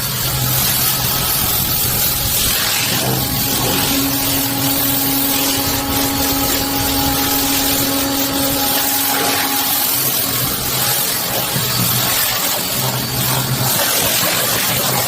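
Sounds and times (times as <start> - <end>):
motor running: 0.0 - 15.0
steady hum: 0.0 - 15.0.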